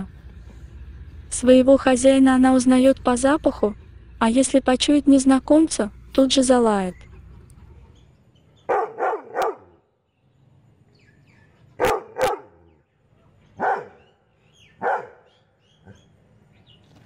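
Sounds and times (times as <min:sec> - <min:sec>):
dog barking: 0:08.7 - 0:09.8, 0:11.8 - 0:12.7, 0:13.6 - 0:14.1, 0:14.8 - 0:16.0.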